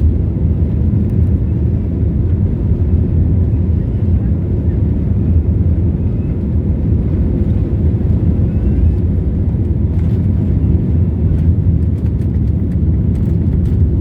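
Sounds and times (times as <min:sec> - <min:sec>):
airliner cabin engine rumble: 0:00.0 - 0:14.0.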